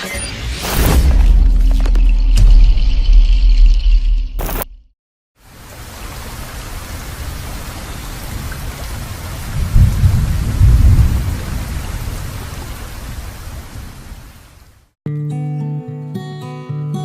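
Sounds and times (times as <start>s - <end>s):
heavy rain: 5.4s - 14.9s
low thunder rumbling: 8.3s - 14.0s.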